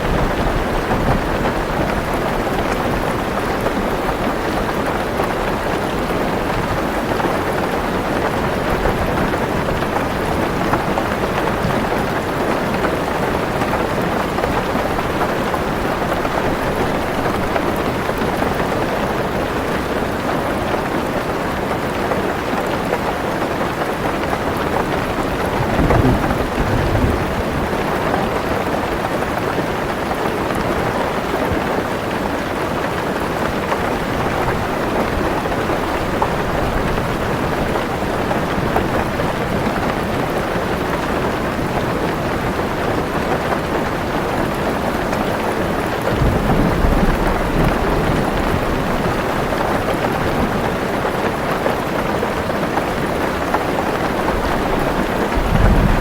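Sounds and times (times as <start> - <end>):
heavy rain on a car roof: 0.0 - 56.0
low thunder rumble: 25.2 - 28.2, 46.1 - 49.3, 54.2 - 56.0.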